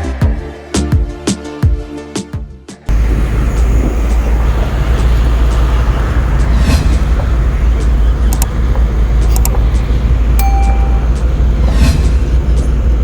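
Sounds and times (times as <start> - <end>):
vehicle rumble: 2.9 - 13.0
short horn beep: 10.4 - 11.2.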